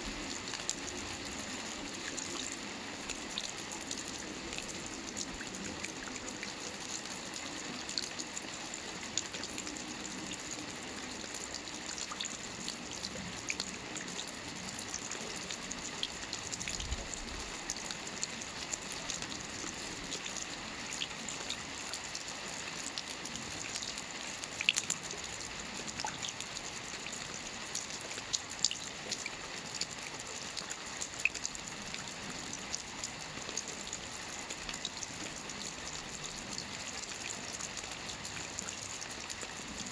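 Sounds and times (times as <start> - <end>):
rain on a roof: 0.0 - 39.9.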